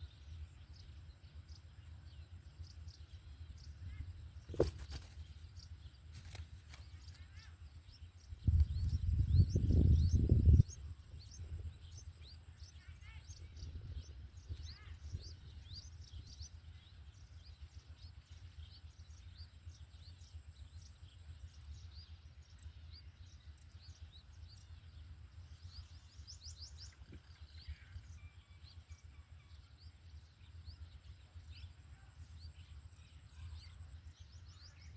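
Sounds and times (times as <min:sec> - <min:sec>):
low steady rumble: 0:00.0 - 0:34.9
small birds chirping: 0:00.0 - 0:34.9.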